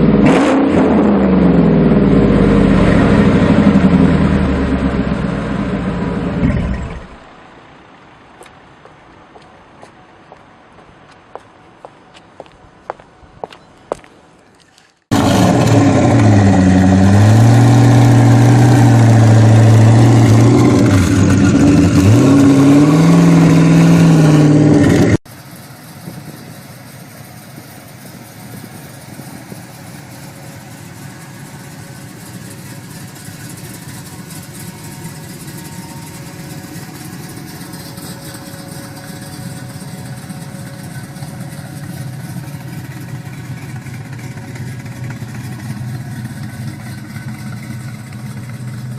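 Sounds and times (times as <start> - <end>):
muscle car engine revving: 0.0 - 7.3, 15.1 - 25.2, 28.3 - 48.9
car engine running steadily: 0.0 - 14.2, 15.1 - 48.9.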